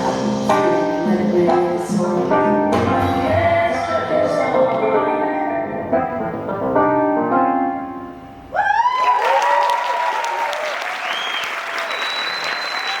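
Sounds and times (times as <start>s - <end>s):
piano-led music: 0.0s - 8.5s
audience applause and cheering: 8.5s - 13.0s.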